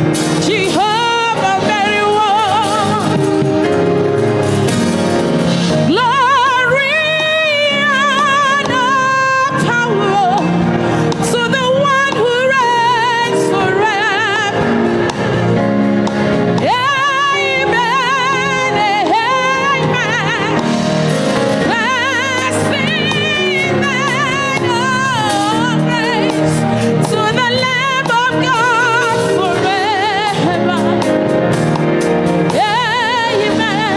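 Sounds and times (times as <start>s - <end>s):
band accompaniment: 0.0s - 33.9s.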